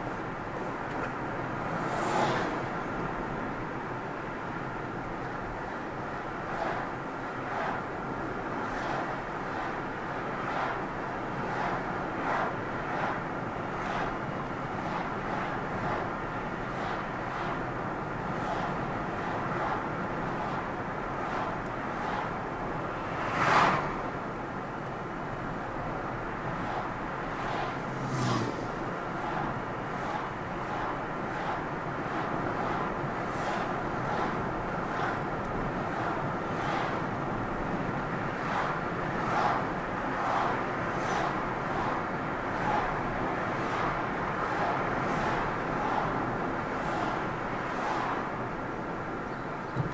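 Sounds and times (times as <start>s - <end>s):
car road and engine noise: 0.0s - 49.9s.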